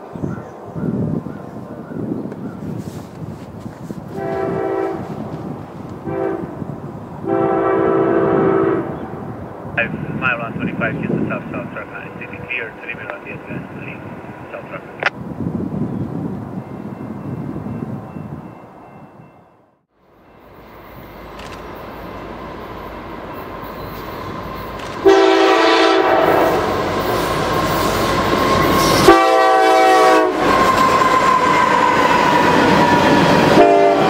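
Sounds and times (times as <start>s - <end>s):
diesel locomotives passing: 0.0s - 34.0s
locomotive horn chords: 4.1s - 5.1s, 6.0s - 6.6s, 7.2s - 9.0s, 25.0s - 26.8s, 28.4s - 32.0s, 33.5s - 34.0s.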